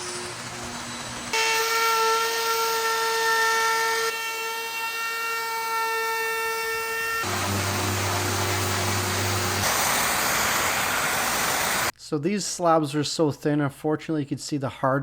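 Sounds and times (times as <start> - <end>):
power tool motor whine: 0.0 - 11.9
hiss: 7.3 - 11.9.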